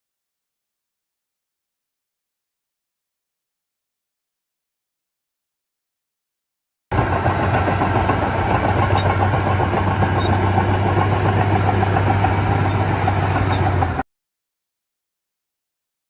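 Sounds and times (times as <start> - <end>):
radio-controlled model engine drone: 6.9 - 14.0.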